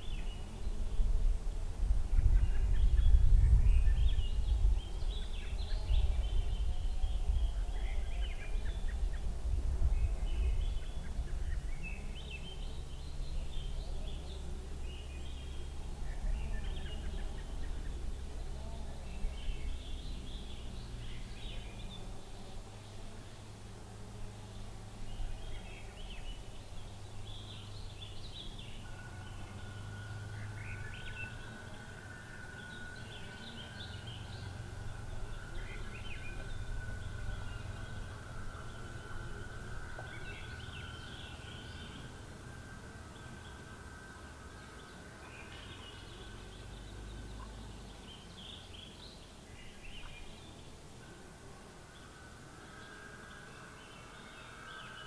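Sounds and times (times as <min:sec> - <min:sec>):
low steady rumble: 0:00.0 - 0:55.0
small birds chirping: 0:00.0 - 0:55.0
thin steady high tone: 0:12.0 - 0:55.0.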